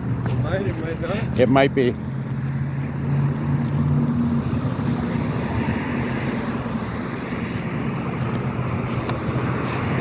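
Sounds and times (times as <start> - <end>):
car engine hum: 0.0 - 10.0
road noise inside moving car: 0.0 - 10.0.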